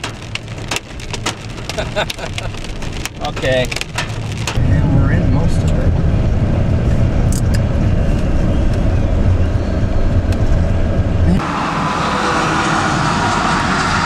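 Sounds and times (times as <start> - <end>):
hail ticking on car: 0.0 - 4.6
low car rumble: 0.0 - 14.0.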